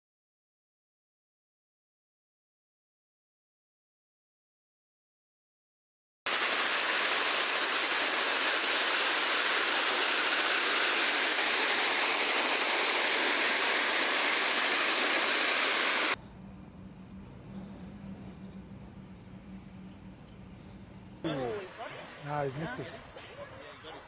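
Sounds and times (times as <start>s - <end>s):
loud rushing noise: 6.3s - 16.2s
faint low hum: 16.2s - 21.2s.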